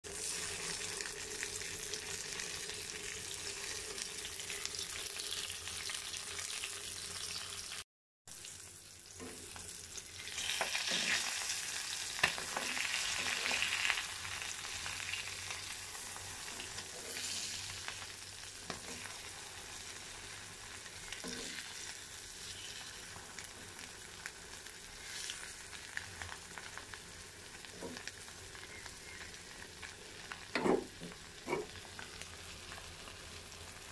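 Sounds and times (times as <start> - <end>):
eggs sizzling in hot oil: 0.1 - 33.9.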